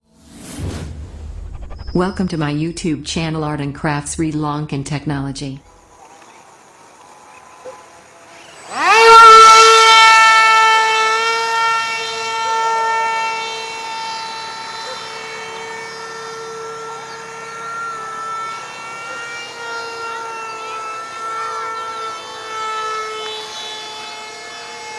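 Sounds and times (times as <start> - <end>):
small electric motor whine: 5.6 - 24.9.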